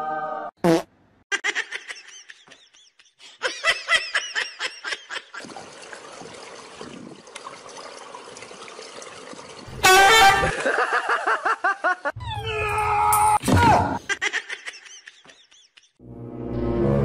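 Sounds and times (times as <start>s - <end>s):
person laughing: 1.3s - 5.4s, 14.0s - 16.0s.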